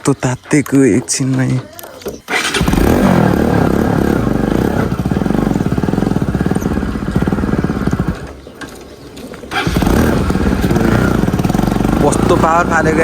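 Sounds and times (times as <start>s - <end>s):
motorcycle engine under throttle: 2.0s - 13.0s.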